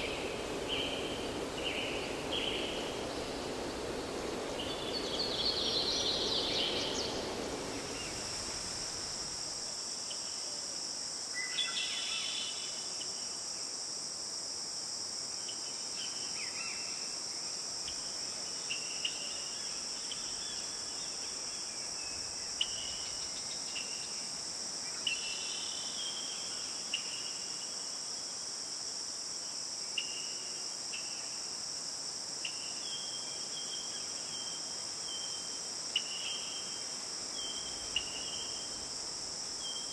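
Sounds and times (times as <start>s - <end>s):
high insect chorus: 0.0s - 39.9s.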